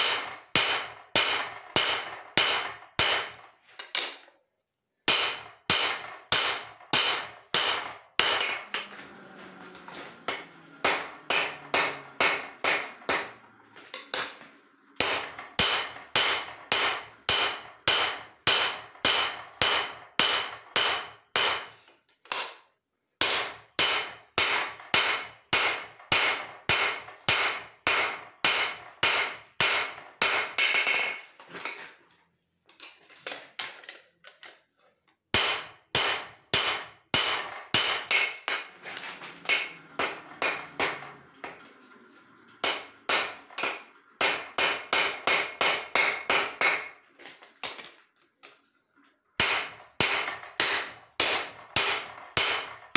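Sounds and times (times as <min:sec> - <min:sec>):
hammer striking steel on anvil: 0:00.0 - 0:03.4, 0:05.1 - 0:08.8, 0:10.3 - 0:13.4, 0:15.0 - 0:22.6, 0:23.2 - 0:31.2, 0:35.4 - 0:38.8, 0:39.4 - 0:41.6, 0:42.6 - 0:47.0, 0:49.4 - 0:52.8.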